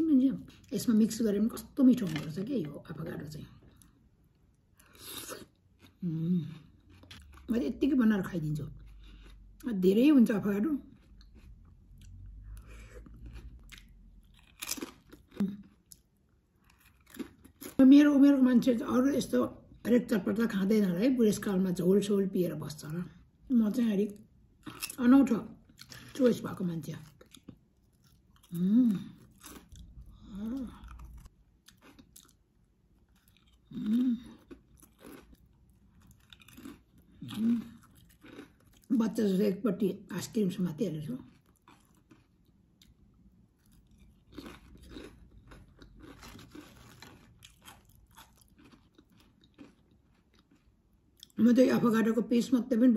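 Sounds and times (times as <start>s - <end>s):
chewing crunchy potato chips: 3.4s - 9.7s, 10.6s - 17.9s, 24.1s - 39.3s, 41.1s - 51.4s.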